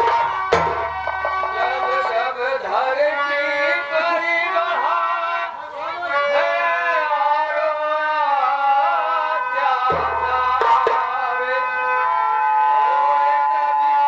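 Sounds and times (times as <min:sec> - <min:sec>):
drum hits: 0:00.0 - 0:02.1, 0:09.8 - 0:11.2
instrumental accompaniment: 0:00.0 - 0:03.2, 0:09.4 - 0:11.6
man singing folk song: 0:01.4 - 0:14.0.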